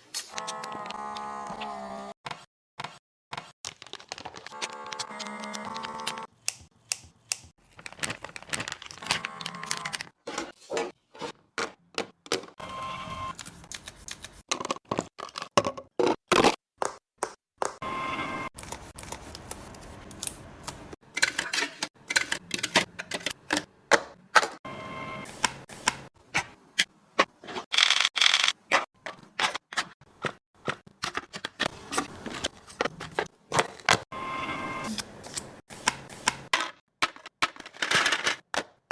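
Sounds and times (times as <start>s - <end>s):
packaging crinkling and tearing: 3.6s - 6.2s, 7.6s - 10.1s
plastic containers clicking and knocking: 11.6s - 12.6s, 14.5s - 17.0s, 36.5s - 38.9s
containers clicking and knocking: 14.5s - 17.0s.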